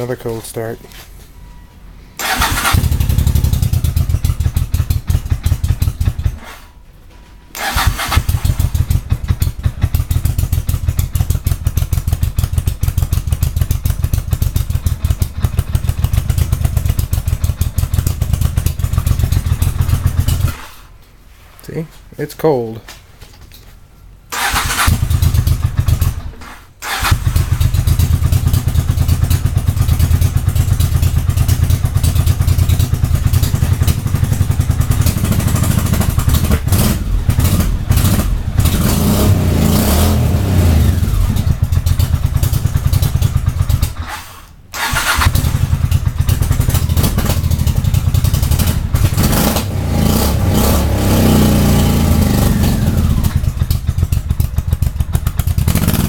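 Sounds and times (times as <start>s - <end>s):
motorcycle engine idling unevenly: 2.6s - 6.4s, 8.2s - 20.5s, 24.9s - 26.3s, 27.1s - 39.2s, 40.3s - 44.0s, 45.0s - 49.8s, 50.9s - 56.0s.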